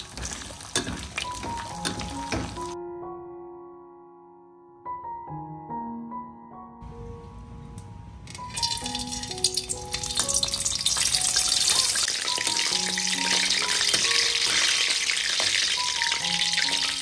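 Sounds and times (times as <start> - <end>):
food sizzling in hot oil: 0.0 - 2.8, 8.3 - 17.0.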